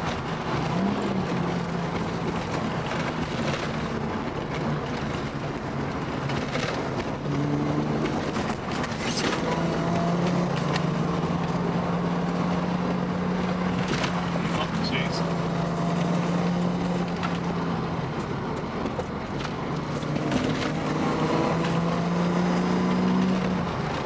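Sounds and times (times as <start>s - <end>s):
car engine running: 0.0s - 24.0s
road noise: 0.0s - 24.0s.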